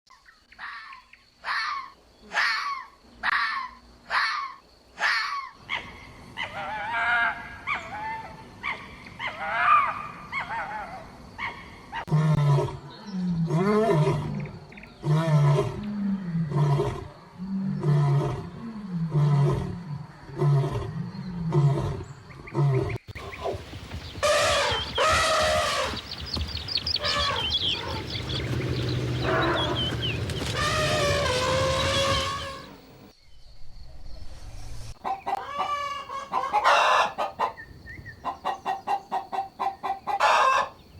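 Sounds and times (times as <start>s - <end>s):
animal calls: 21.8s - 33.0s.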